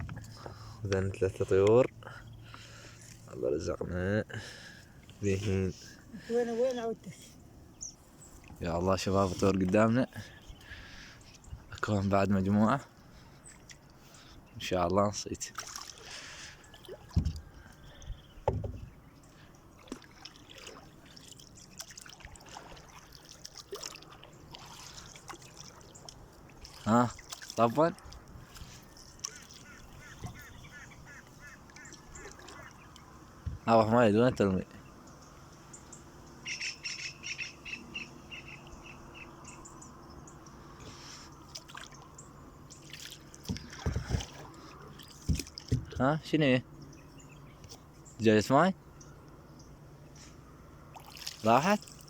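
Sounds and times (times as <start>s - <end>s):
dull knocks against a boat: 0.0s - 0.6s, 17.0s - 17.5s, 18.1s - 19.0s, 30.1s - 30.5s, 33.4s - 33.7s, 43.4s - 46.2s
water lapping around a boat: 0.0s - 52.0s
bird calling: 28.4s - 33.9s, 34.7s - 46.0s
bird chirps: 34.8s - 42.9s.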